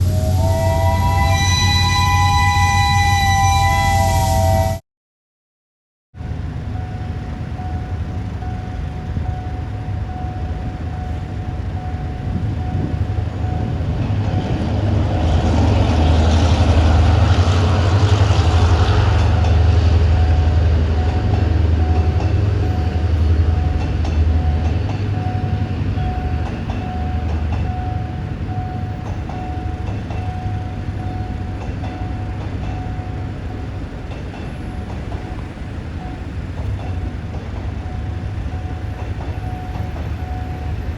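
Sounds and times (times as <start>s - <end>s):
diesel locomotive rumble: 0.0s - 4.8s, 6.2s - 40.9s
train horn chord: 0.0s - 4.8s.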